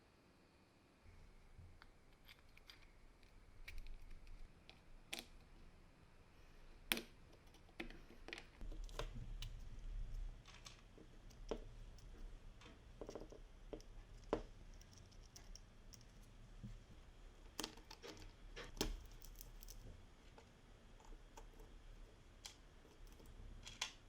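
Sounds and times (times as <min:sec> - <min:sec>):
clicks and taps of small parts: 0:10.4 - 0:16.2.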